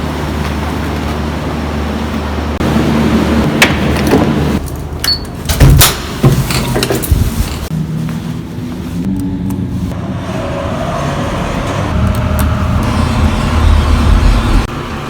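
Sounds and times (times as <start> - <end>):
steady low hum: 7.7 - 15.0.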